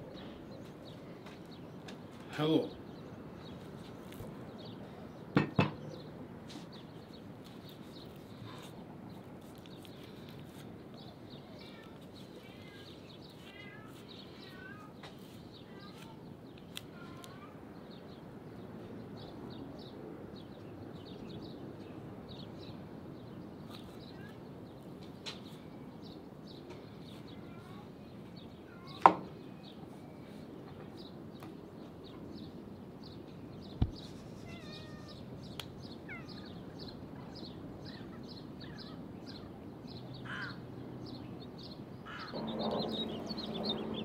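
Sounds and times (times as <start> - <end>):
birds chirping: 0.0 - 44.0
steady outdoor hiss: 0.0 - 44.0
sharp knocks: 5.4 - 5.8.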